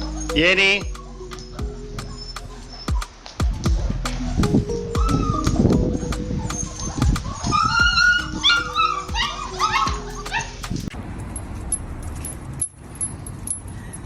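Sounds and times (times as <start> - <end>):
background music: 0.0 - 10.9
dog whining and yipping: 0.0 - 10.9.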